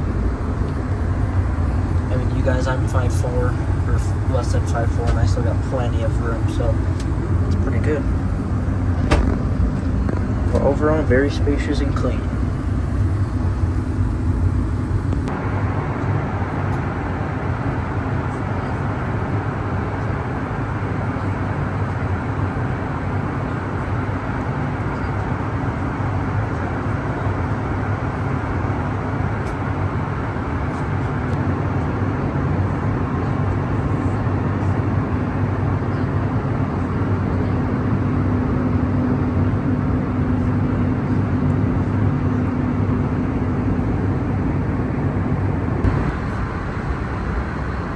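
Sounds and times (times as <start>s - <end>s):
steady droning tone: 0.0s - 16.4s, 44.8s - 47.9s
rush of cabin air: 0.0s - 31.4s, 43.9s - 47.9s
low engine hum: 0.0s - 31.6s, 36.7s - 47.9s.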